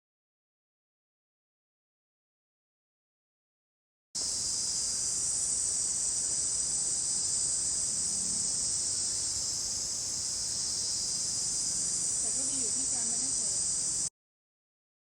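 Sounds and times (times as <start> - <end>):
insect chorus drone: 4.2 - 14.1.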